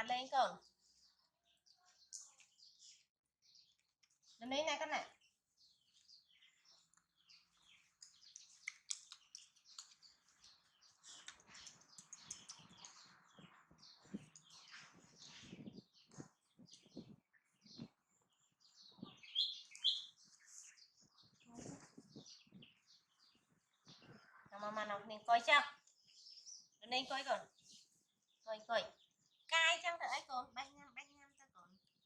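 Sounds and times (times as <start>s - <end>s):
animal chewing and lip-smacking: 7.8s - 13.3s.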